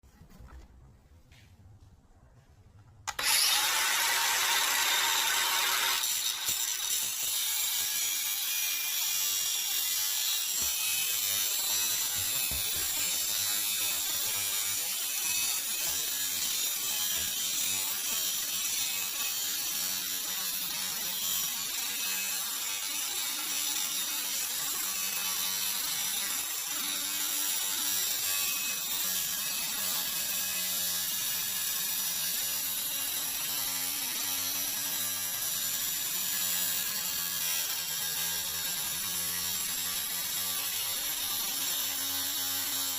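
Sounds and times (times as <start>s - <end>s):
angle grinder cutting metal: 3.1s - 42.9s.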